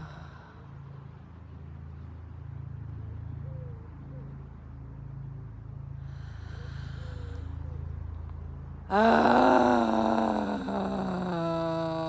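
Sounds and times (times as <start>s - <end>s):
woman's low sustained vocal drone: 0.0s - 2.1s, 5.8s - 12.0s.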